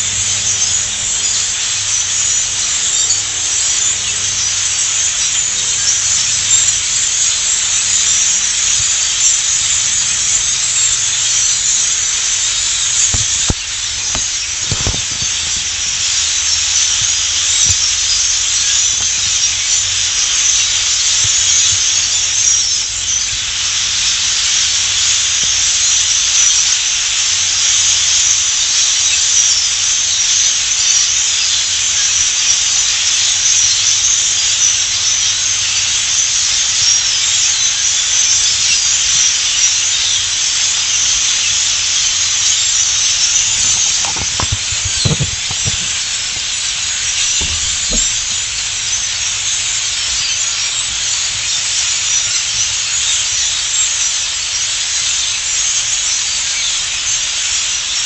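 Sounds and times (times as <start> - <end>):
high-pitched hiss: 0.0 - 26.8.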